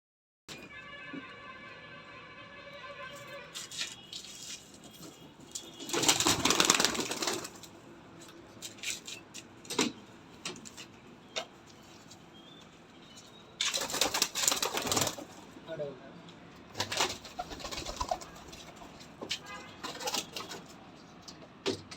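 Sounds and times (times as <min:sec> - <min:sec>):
pigeon wings flapping: 0:05.8 - 0:07.7, 0:13.6 - 0:15.4, 0:16.7 - 0:18.9, 0:19.8 - 0:20.7.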